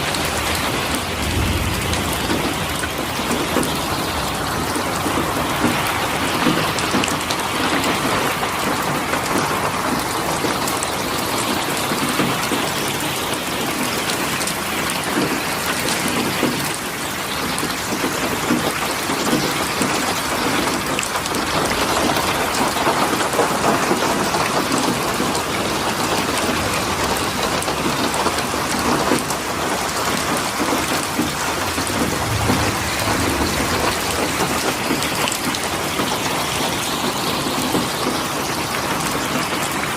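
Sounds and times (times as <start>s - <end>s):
low rumble: 0.0s - 5.4s, 31.3s - 35.8s
heavy rain hissing: 0.0s - 14.7s, 25.2s - 39.9s.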